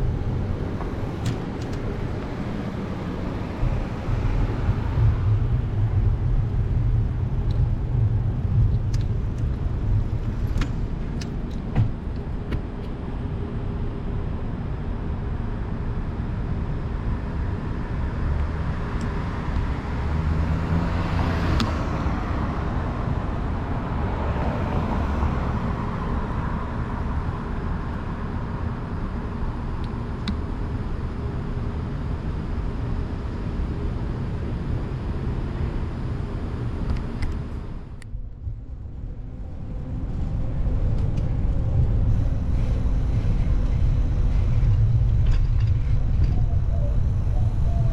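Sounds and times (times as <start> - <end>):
street traffic rumble: 0.0 - 47.9
vehicle passing: 19.7 - 25.9.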